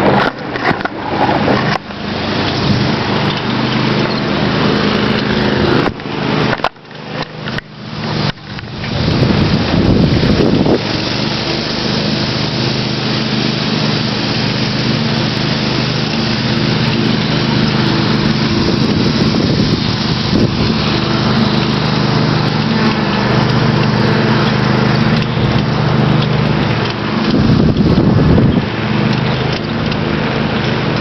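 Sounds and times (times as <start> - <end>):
small engine running: 0.0 - 31.0
wind and riding noise: 0.0 - 31.0.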